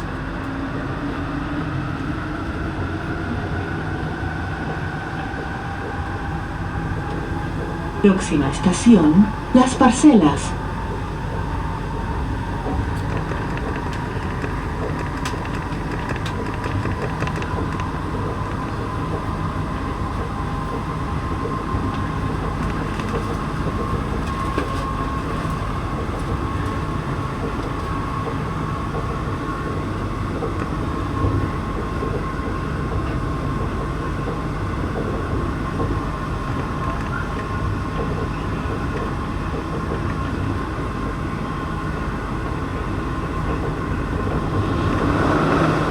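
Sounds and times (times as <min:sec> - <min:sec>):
train running gear rumble: 0:00.0 - 0:45.9
thin steady whine: 0:08.0 - 0:10.8.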